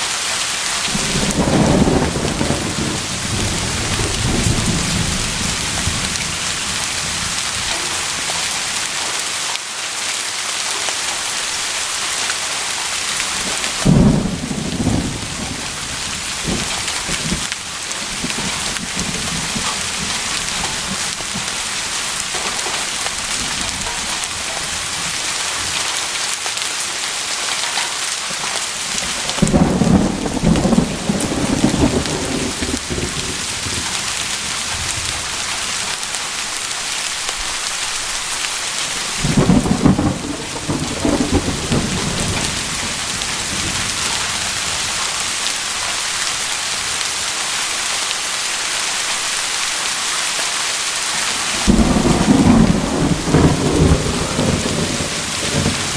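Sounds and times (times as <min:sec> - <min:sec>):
steady rain hissing: 0:00.0 - 0:55.9
rolls of thunder: 0:00.9 - 0:08.3, 0:29.0 - 0:33.9, 0:39.2 - 0:44.5, 0:51.6 - 0:55.9.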